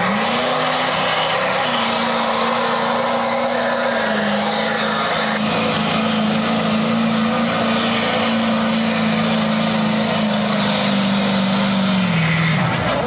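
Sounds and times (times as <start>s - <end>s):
pickup truck engine revving high: 0.0s - 13.0s.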